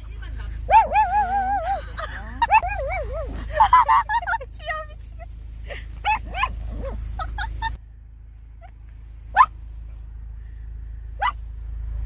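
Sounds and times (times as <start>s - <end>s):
small dog barking: 0.5s - 3.7s, 6.0s - 7.7s, 9.3s - 9.6s, 11.2s - 11.5s.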